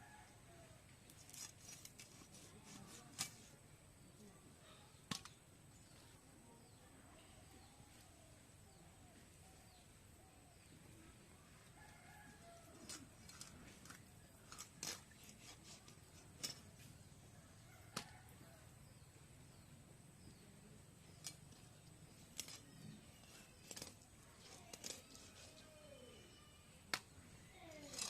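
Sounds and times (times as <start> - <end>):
faint bird chirps: 16.8 - 27.9.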